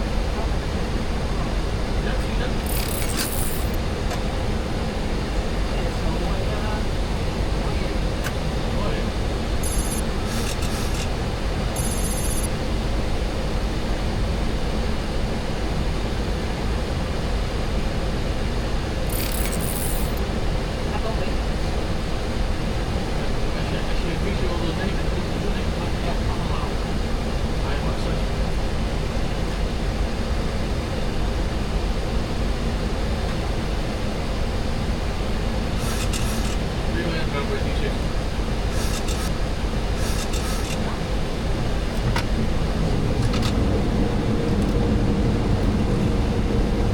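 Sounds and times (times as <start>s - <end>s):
jet engines and airflow rushing: 1.6s - 14.8s, 35.1s - 46.9s
rapid high-pitched beeps: 2.6s - 3.8s, 9.6s - 11.1s, 11.7s - 12.5s, 19.1s - 20.2s, 35.8s - 36.6s, 38.7s - 39.3s, 40.0s - 40.8s.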